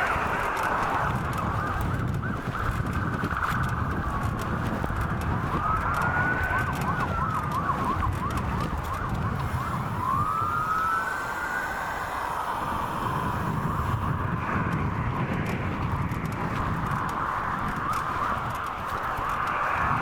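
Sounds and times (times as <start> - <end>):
fire truck siren wailing: 0.0 - 14.7
low rumble of traffic: 0.0 - 20.0
fire truck siren yelping: 3.6 - 14.2.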